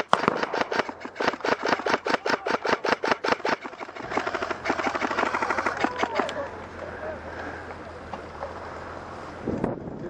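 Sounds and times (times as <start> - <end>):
airsoft gun firing full auto: 0.0 - 6.4.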